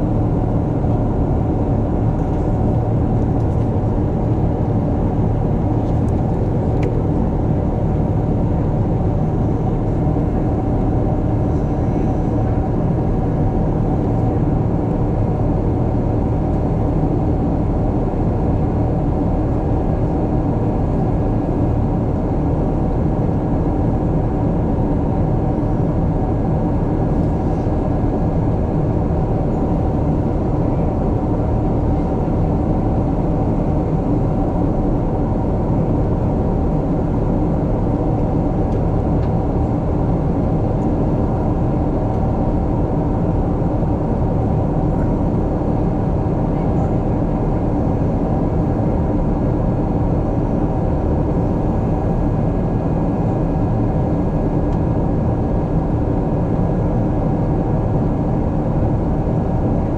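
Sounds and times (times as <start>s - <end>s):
airplane cabin rumble: 0.0s - 59.9s.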